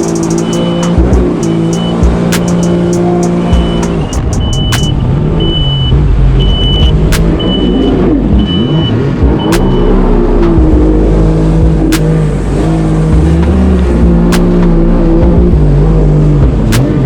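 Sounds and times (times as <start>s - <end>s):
sharp clicks: 0.0s - 5.1s, 6.6s - 7.7s, 9.4s - 10.7s, 14.3s - 14.8s
high beep: 0.0s - 10.7s
jet ski engine running: 0.0s - 17.0s.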